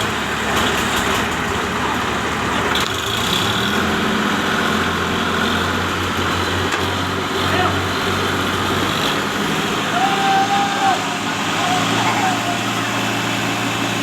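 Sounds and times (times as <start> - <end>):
tractor engine humming: 0.0 - 14.0.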